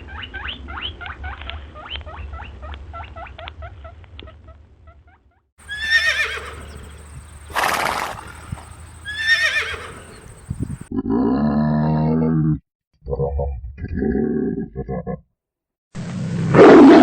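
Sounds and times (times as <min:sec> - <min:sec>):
horse whinnying: 0:05.6 - 0:10.8
horse snorting: 0:05.6 - 0:10.9
rapid chirping calls: 0:05.6 - 0:10.9.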